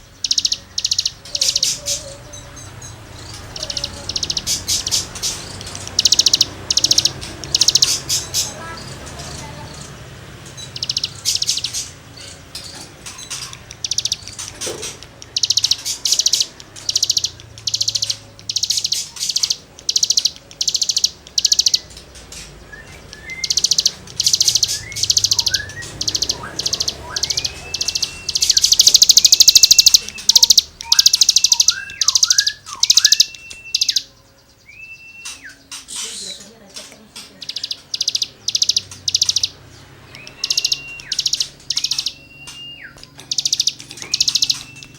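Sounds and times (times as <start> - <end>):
songbird raspy scratchy phrases: 0.3 - 12.5, 13.3 - 34.1, 35.4 - 42.2.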